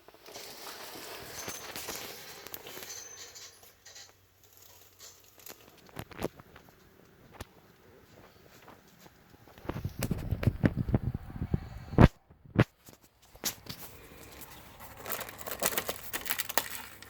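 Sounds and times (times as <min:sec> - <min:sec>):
rapid crinkling: 0:03.8 - 0:10.9, 0:12.6 - 0:17.0
packaging rustling and knocking: 0:12.9 - 0:17.0.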